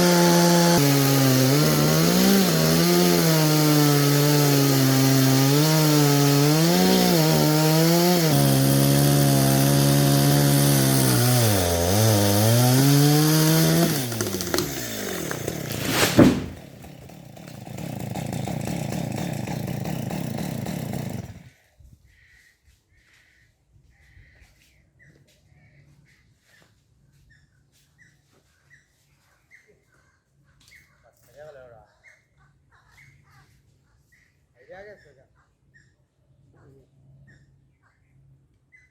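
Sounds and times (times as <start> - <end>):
chainsaw cutting wood: 0.0 - 21.5
loud crack: 14.2 - 16.7.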